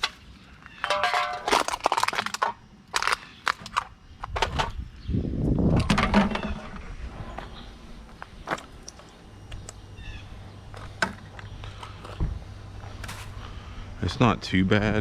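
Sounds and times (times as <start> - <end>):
litter crunching and crackling: 0.0 - 4.6.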